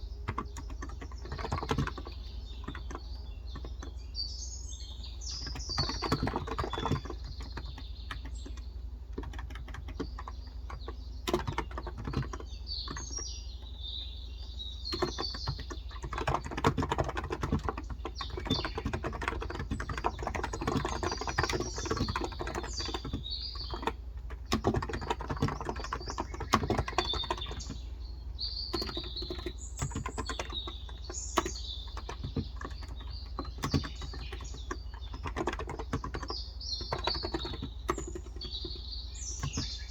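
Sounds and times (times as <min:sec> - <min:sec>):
birds chirping: 0:00.0 - 0:39.9
keyboard key clicks: 0:00.1 - 0:04.0, 0:05.4 - 0:13.1, 0:28.7 - 0:38.8.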